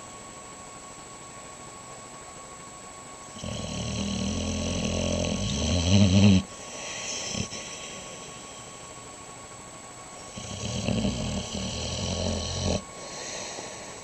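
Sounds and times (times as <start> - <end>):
dog snoring: 3.3 - 8.8, 10.2 - 14.0.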